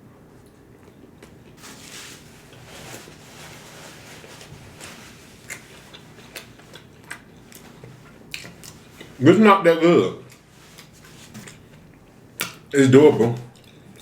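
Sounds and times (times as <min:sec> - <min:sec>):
person chewing food: 0:04.2 - 0:09.2, 0:10.3 - 0:12.7, 0:13.5 - 0:14.0.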